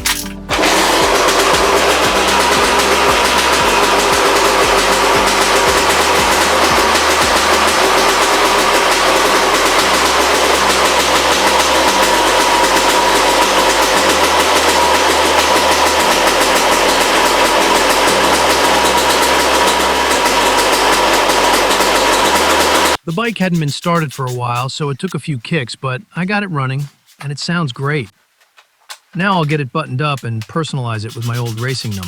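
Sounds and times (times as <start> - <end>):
two-stroke engine idling: 0.5 - 23.0, 31.0 - 32.0.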